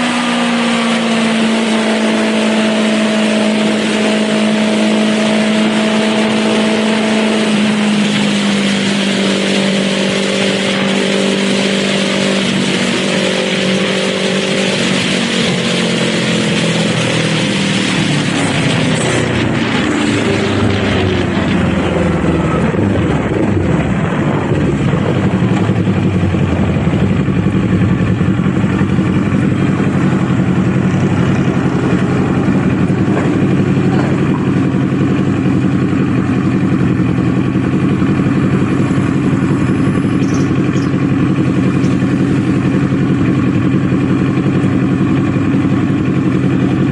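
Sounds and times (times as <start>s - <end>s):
motorcycle engine: 0.0s - 46.9s
wind rush: 12.2s - 33.8s.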